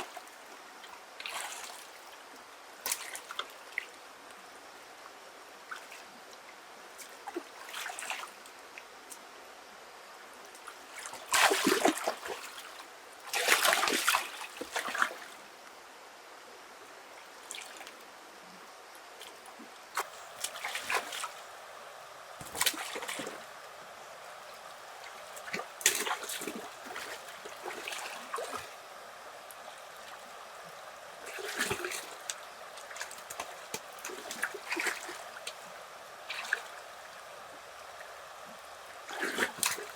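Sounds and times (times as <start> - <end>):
faint water trickle: 0.0 - 39.9
water splashing: 11.0 - 12.7, 13.3 - 15.2, 20.0 - 21.6, 22.4 - 23.7, 24.6 - 28.8, 31.2 - 37.0.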